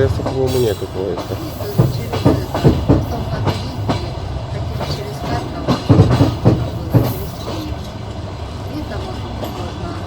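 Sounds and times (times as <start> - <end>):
train running rumble: 0.0 - 10.0
train wheels clacking on rails: 0.0 - 10.0.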